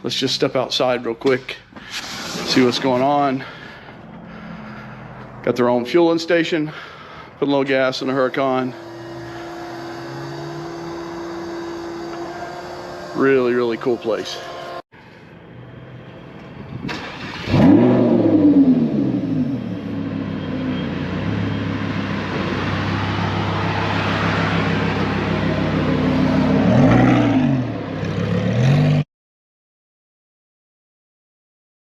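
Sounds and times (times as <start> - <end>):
car engine revving: 2.0 - 6.0, 6.8 - 14.8, 15.7 - 29.0.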